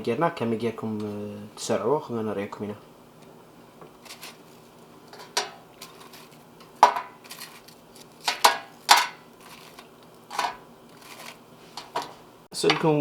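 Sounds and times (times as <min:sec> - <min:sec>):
dishes clattering: 0:05.1 - 0:07.6, 0:08.2 - 0:12.9.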